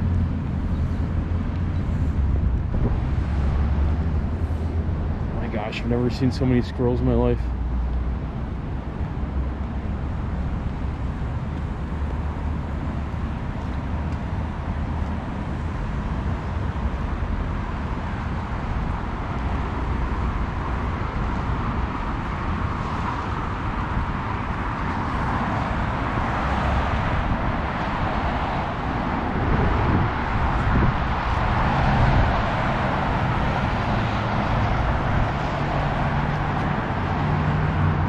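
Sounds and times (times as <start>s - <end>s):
vehicle passing close by: 0.0s - 7.0s, 19.6s - 38.0s
road rumble of passing cars: 0.0s - 38.0s.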